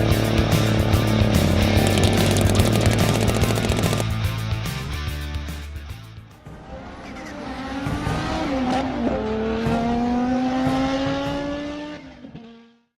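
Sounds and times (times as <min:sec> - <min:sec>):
sharp clicks: 0:01.8 - 0:04.2.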